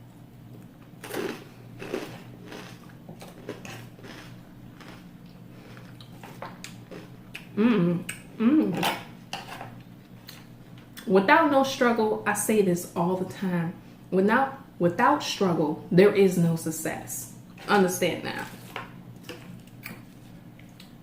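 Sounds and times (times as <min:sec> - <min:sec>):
cutlery scraping a plate: 0:08.8 - 0:09.8.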